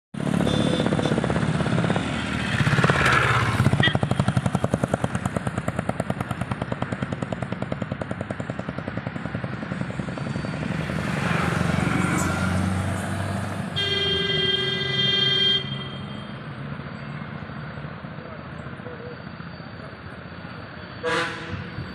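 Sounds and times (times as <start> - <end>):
vehicle engine running: 0.2 - 20.7
vehicle horn held note: 13.8 - 16.2, 21.0 - 21.7.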